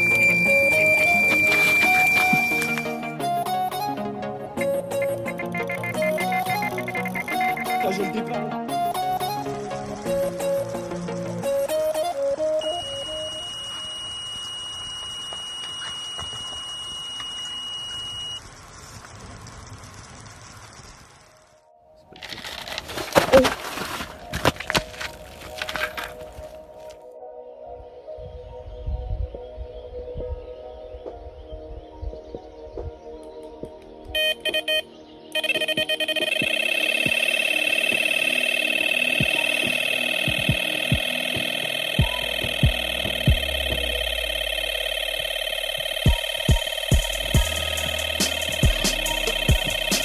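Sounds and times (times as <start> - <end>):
electronic bite alarm tone: 0.0 - 3.2, 4.9 - 8.4, 12.6 - 18.4, 34.2 - 50.0.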